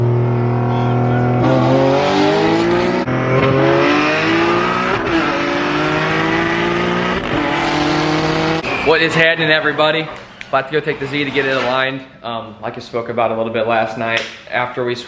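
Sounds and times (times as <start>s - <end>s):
car engine accelerating hard: 0.0s - 8.9s.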